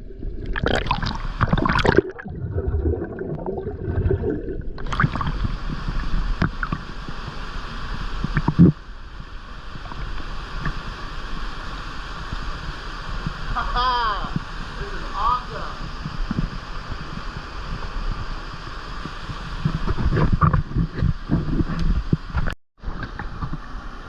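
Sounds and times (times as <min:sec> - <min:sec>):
water splashing and gurgling: 0:00.0 - 0:24.0
waterfall rushing: 0:04.8 - 0:16.1.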